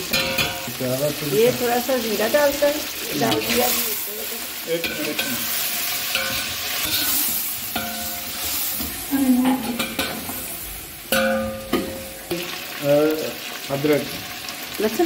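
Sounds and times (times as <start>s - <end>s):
chicken sizzling in hot oil: 0.0s - 15.0s
metal spatula scraping pot: 4.8s - 12.4s.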